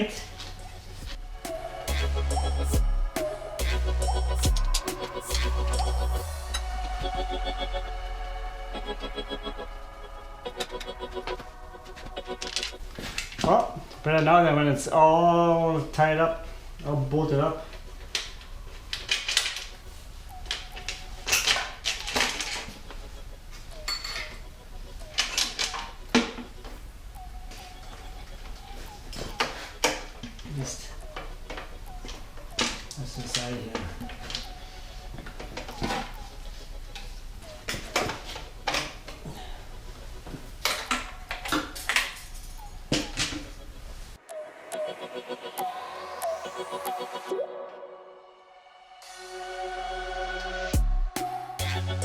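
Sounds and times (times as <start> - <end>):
faint birds chirping: 19.6 - 44.1.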